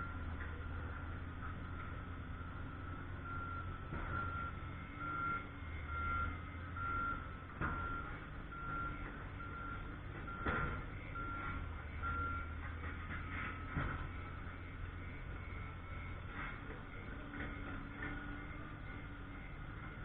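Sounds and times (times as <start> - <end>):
diesel engine hum: 0.0 - 20.0
backup alarm beeping: 2.3 - 12.6.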